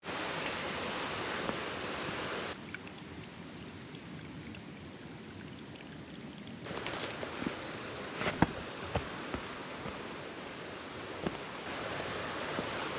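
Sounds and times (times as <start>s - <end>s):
creek water rushing: 0.0s - 12.9s.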